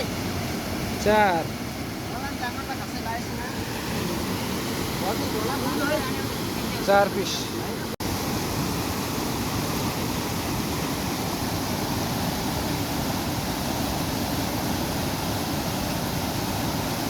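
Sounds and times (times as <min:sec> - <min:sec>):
river rushing in flood: 0:00.0 - 0:17.0.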